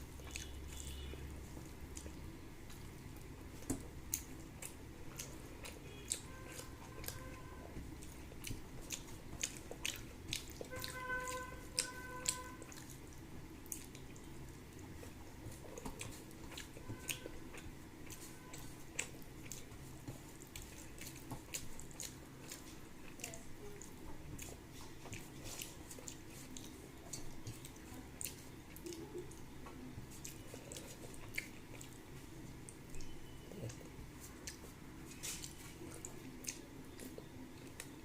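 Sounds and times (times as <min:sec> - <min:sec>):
person chewing and smacking: 0:00.0 - 0:38.0.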